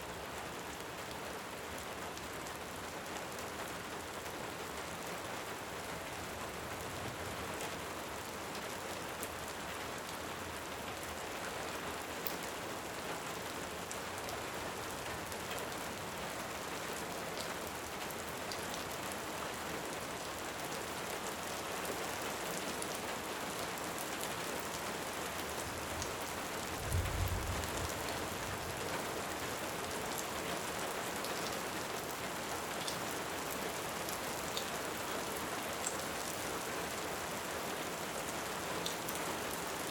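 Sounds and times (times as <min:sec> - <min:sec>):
rain falling: 0:00.1 - 0:39.9.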